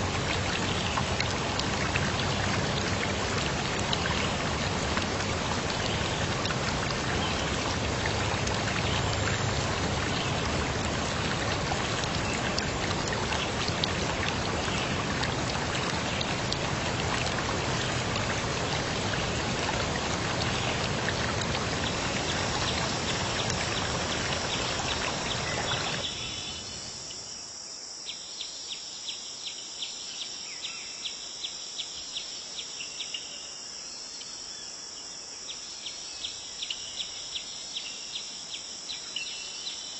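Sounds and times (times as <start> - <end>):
rushing water: 0.0 - 27.2
insects chirping: 18.6 - 39.9.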